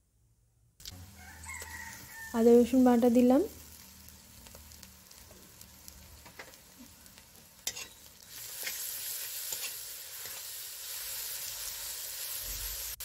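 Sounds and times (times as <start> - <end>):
onions and paste frying in oil: 0.8 - 13.0
metal spatula scraping a pan: 7.4 - 12.9.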